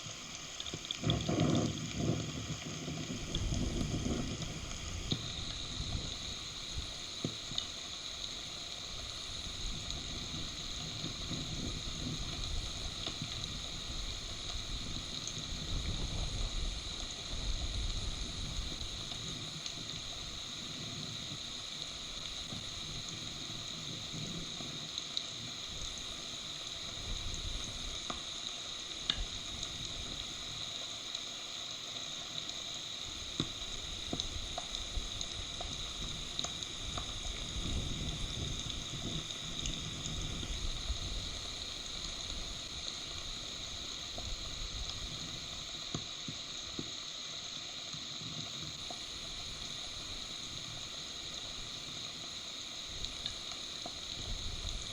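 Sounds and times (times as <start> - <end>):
steady rain hissing: 0.0 - 54.9
wind rumbling on microphone: 3.1 - 6.9, 9.6 - 19.0, 36.8 - 42.6.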